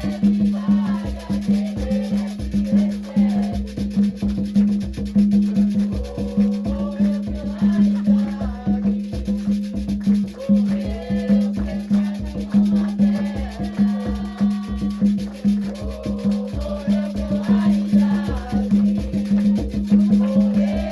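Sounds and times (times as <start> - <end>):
wavering singing: 0.0 - 3.5, 10.3 - 20.9
drums in a quick steady rhythm: 0.0 - 20.9
shaken rattle: 0.0 - 20.9.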